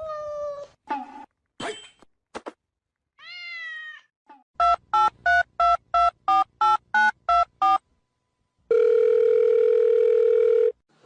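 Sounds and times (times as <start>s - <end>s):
cat meowing: 3.2s - 4.1s.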